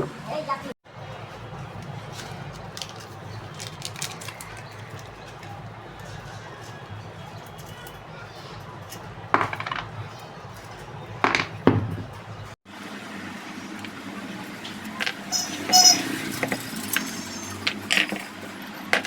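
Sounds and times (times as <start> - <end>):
metal parts and tools clinking: 15.0 - 19.0
ringing metallic taps: 15.3 - 16.6.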